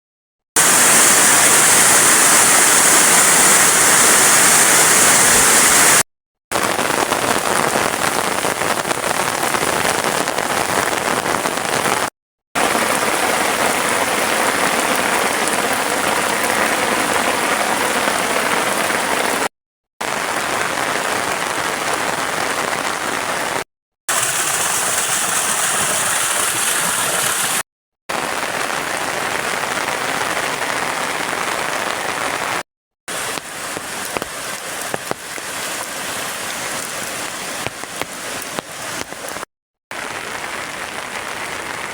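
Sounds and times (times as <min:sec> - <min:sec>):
heavy rain falling: 0:00.6 - 0:41.9.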